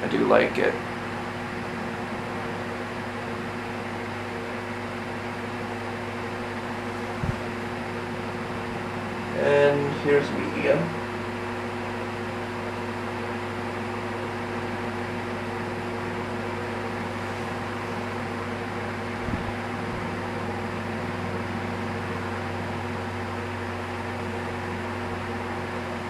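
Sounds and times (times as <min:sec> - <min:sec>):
ceiling fan electrical hum: 0:00.0 - 0:26.0
moving air: 0:06.7 - 0:09.4.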